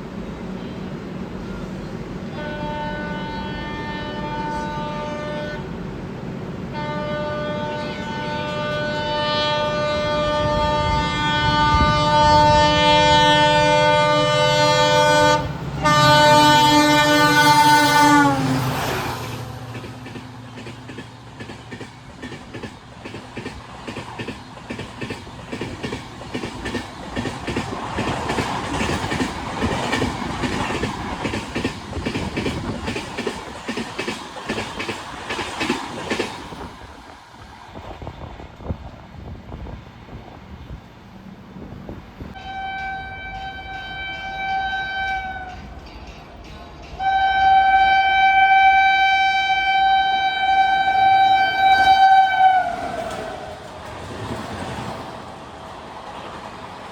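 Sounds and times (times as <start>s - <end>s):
train passing at speed: 0.0s - 56.9s
train horn: 2.3s - 5.8s, 6.7s - 19.3s, 42.4s - 45.7s, 47.0s - 53.6s.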